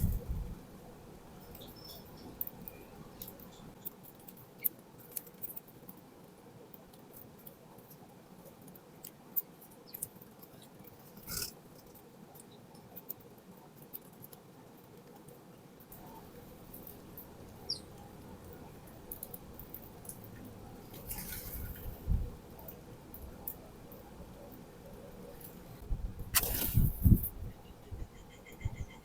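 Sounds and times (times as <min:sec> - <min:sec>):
birds pecking at seed: 0:00.0 - 0:29.0
brief scuffling: 0:26.4 - 0:27.3.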